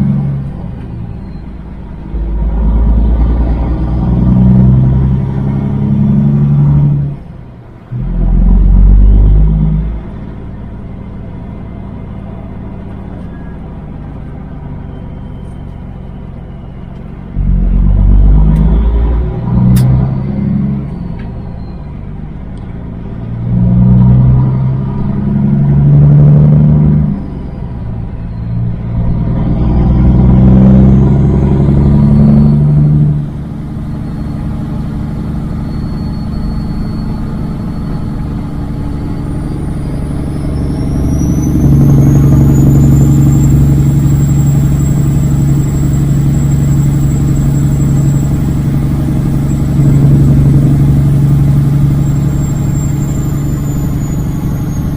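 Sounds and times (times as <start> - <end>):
truck diesel engine shifting gears: 0.0 - 54.9
high whine: 26.8 - 54.9.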